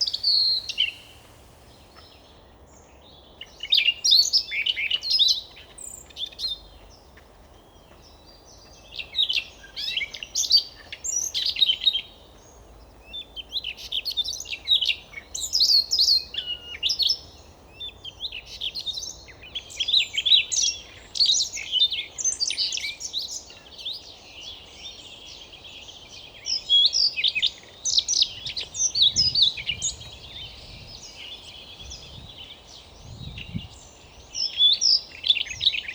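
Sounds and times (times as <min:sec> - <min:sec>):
bird singing high varied notes: 0:00.0 - 0:02.4.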